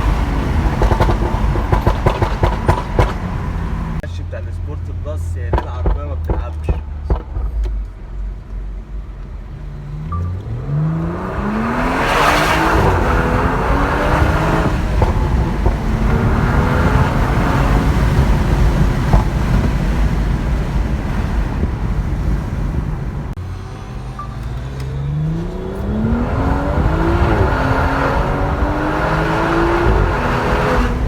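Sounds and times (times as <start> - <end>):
car engine accelerating hard: 0.0 - 31.0
road noise: 0.0 - 31.0.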